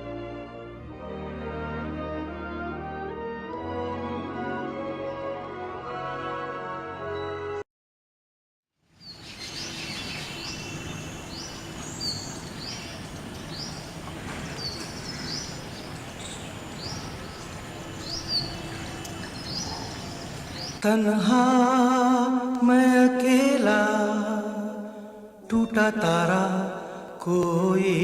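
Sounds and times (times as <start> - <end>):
background music: 0.0 - 7.6
outdoor background noise: 8.8 - 21.3
bird chirping: 9.0 - 20.9.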